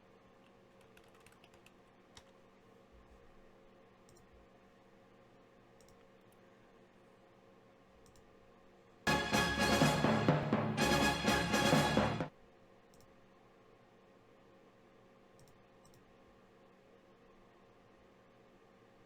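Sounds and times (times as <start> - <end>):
computer keyboard typing clicks: 0.4 - 2.4, 4.1 - 4.3, 5.8 - 6.4, 8.0 - 8.3, 15.4 - 16.1.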